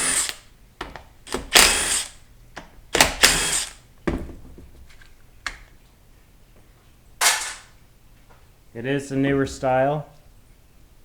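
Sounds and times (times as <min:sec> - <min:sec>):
power tool bursts: 0:01.3 - 0:02.2, 0:03.0 - 0:03.8
metal parts clicking: 0:07.2 - 0:07.7.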